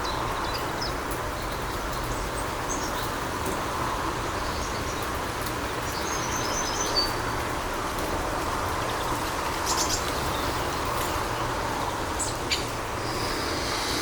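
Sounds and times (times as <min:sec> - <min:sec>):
background hiss and hum: 0:07.5 - 0:14.0.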